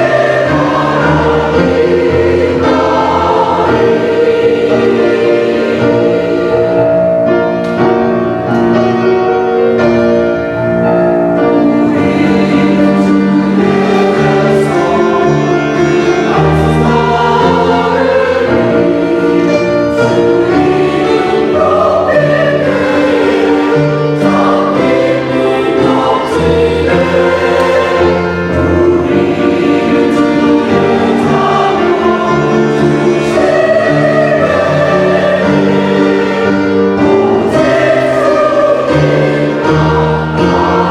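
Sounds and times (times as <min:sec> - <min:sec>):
church choir singing: 0:00.0 - 0:40.9
low bass line: 0:06.6 - 0:08.9.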